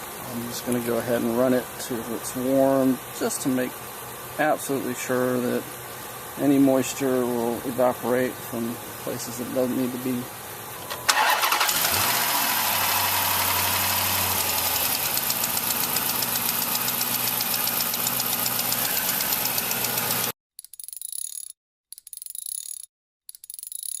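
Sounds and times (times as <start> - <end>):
car engine idling: 10.9 - 20.3.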